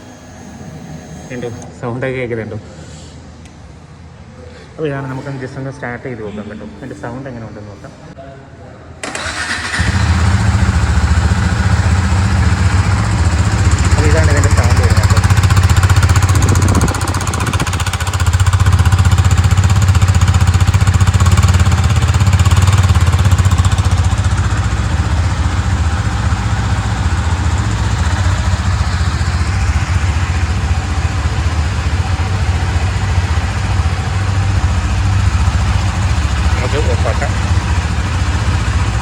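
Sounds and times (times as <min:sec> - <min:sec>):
motorcycle engine idling: 0:09.1 - 0:39.0.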